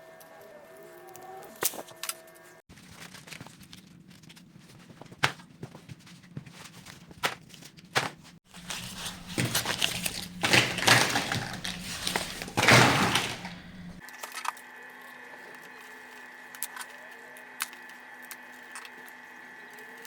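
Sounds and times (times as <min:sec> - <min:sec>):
cardboard scraping and rustling: 0:04.7 - 0:14.0.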